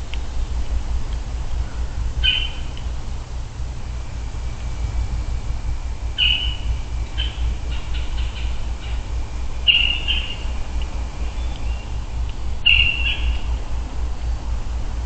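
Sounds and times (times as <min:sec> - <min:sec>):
low steady hum: 0:00.0 - 0:15.0
bird calling high notes: 0:01.6 - 0:02.8, 0:06.0 - 0:13.7.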